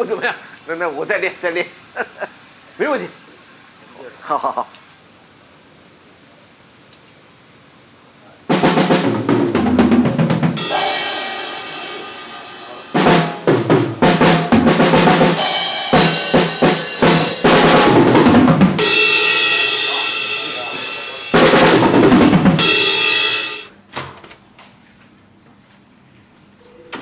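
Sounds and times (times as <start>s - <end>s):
bass drum hits: 8.5s - 23.7s
snare drum hits: 8.5s - 23.7s
crash cymbals ringing: 10.6s - 14.6s, 15.3s - 23.7s.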